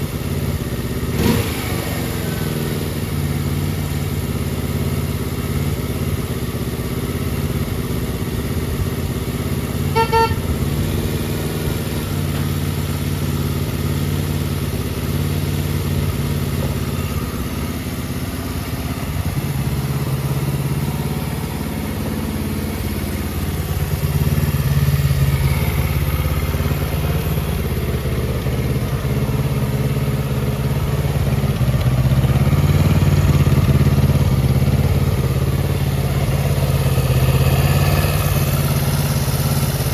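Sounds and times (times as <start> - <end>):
motorcycle engine idling: 0.0 - 39.9
short horn beep: 9.8 - 10.6.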